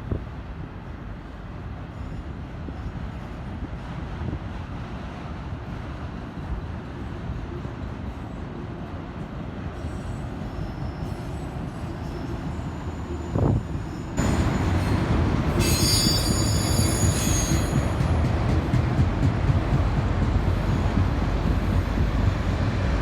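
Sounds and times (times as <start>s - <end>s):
freight train rumbling past: 0.0s - 23.0s
train wheels squealing: 1.9s - 3.6s, 9.8s - 18.3s.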